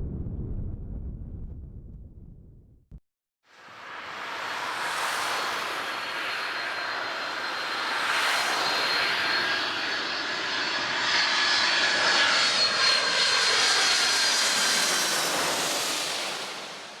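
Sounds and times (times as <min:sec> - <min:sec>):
jet engines roaring: 0:03.7 - 0:17.0.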